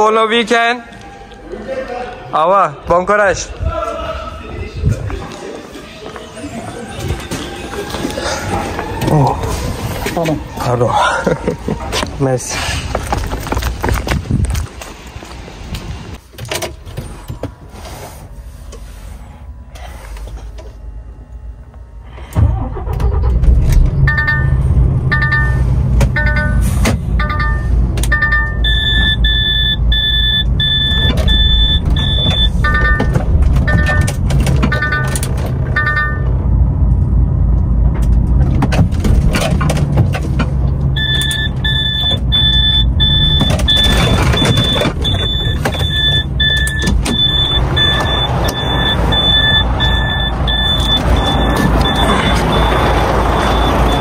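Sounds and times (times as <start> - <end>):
diesel engine starting and idling: 22.0 - 54.0
high-pitched warning chime beeping: 24.1 - 34.1, 34.7 - 35.2, 41.0 - 54.0.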